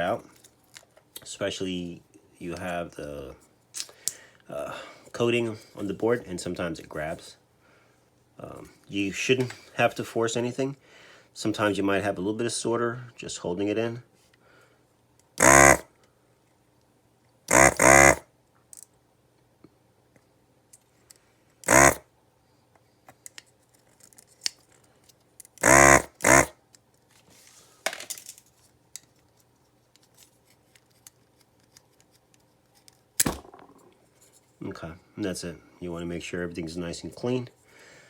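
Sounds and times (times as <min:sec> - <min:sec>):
faint steady hum: 0:00.0 - 0:38.0
vacuum pump buzzing: 0:15.4 - 0:15.8, 0:17.5 - 0:18.2, 0:21.6 - 0:22.0, 0:25.6 - 0:26.5.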